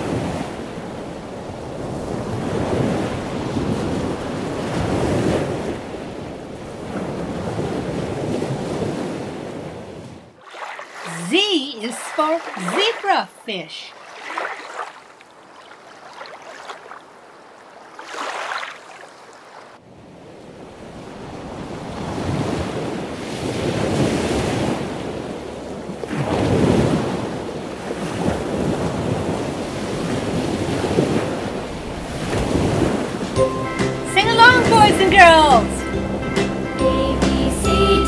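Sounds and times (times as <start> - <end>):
ocean surf rushing: 0.0 - 9.7, 10.3 - 14.4, 26.2 - 38.0.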